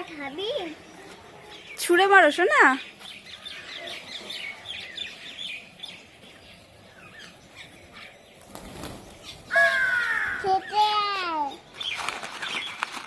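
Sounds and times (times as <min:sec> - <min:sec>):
small birds chirping: 0:00.0 - 0:13.0
bird call falling in pitch: 0:09.5 - 0:10.6.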